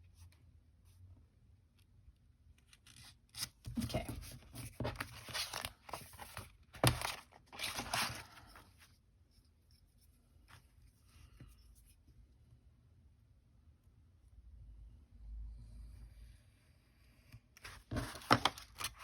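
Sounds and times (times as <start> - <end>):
paper rustling: 2.8 - 8.9, 17.6 - 19.0.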